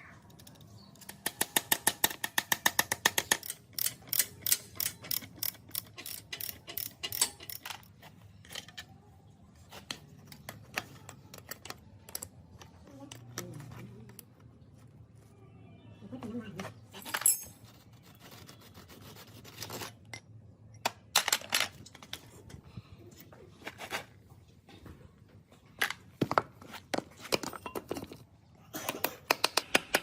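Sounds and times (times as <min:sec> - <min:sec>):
hand tools clinking on metal: 0:00.4 - 0:08.9, 0:17.0 - 0:17.6.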